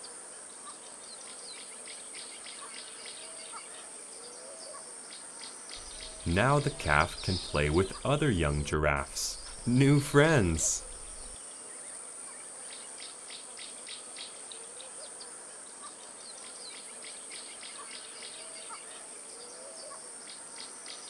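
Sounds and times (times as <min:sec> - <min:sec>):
faint bird-like calls: 0:05.8 - 0:08.1.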